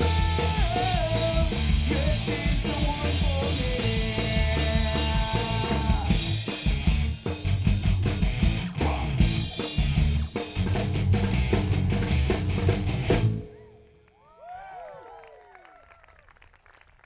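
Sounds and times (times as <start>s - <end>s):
live rock band playing: 0.0s - 13.6s
faint whoops: 13.4s - 16.4s.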